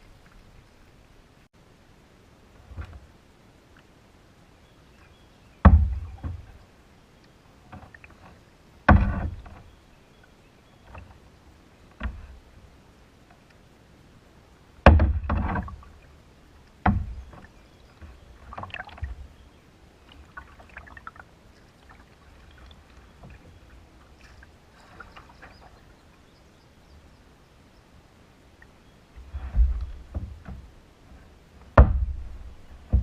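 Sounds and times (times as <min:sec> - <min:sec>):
paddling sounds: 0:04.9 - 0:33.0
paddle knocking on canoe hull: 0:05.6 - 0:06.5, 0:08.9 - 0:09.6, 0:14.8 - 0:15.8, 0:16.8 - 0:19.2, 0:29.3 - 0:30.7, 0:31.7 - 0:33.0.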